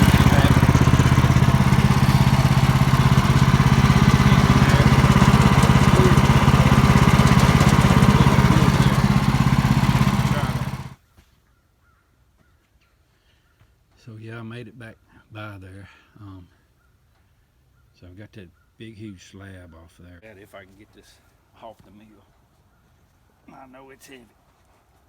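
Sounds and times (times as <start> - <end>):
sawmill engine pulsing: 0.0 - 11.0.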